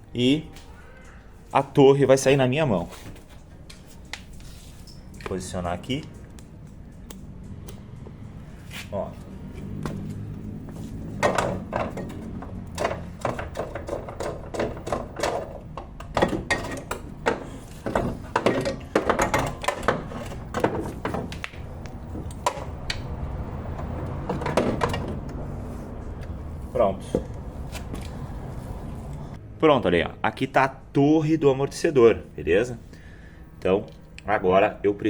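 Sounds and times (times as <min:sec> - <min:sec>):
metallic clanks and knocks: 0:11.0 - 0:25.4.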